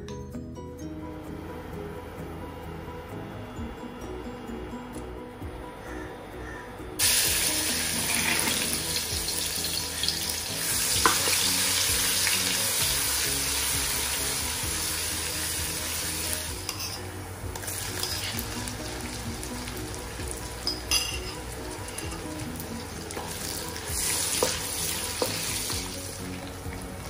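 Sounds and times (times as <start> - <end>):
shallots and garlic sizzling: 7.0 - 27.0.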